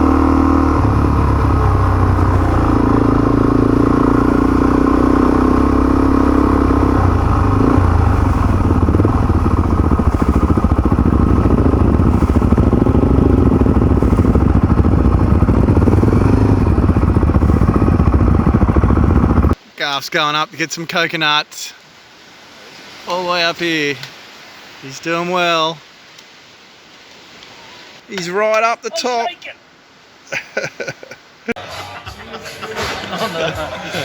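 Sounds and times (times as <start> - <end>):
motorcycle engine running: 0.0 - 19.6.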